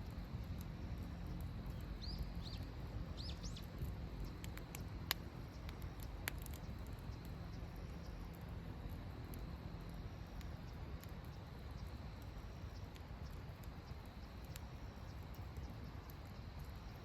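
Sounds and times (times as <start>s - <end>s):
steady low rumble: 0.0s - 17.0s
sharp clicks and pops: 3.5s - 7.3s.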